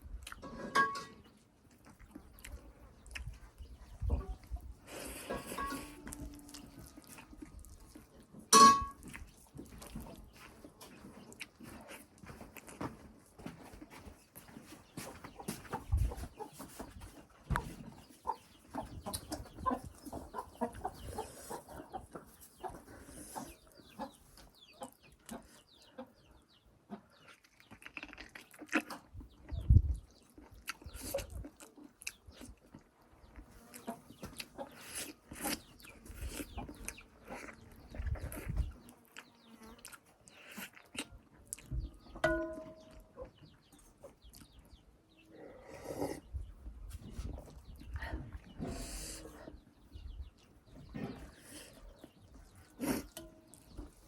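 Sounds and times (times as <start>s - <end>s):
chewing and lip-smacking: 0.2s - 0.4s, 1.7s - 3.7s, 4.4s - 8.3s, 9.0s - 10.3s, 10.9s - 12.9s, 27.2s - 42.0s, 42.9s - 44.8s
metal spoon clinking on plate: 0.4s - 1.2s, 8.5s - 9.0s, 42.2s - 43.0s.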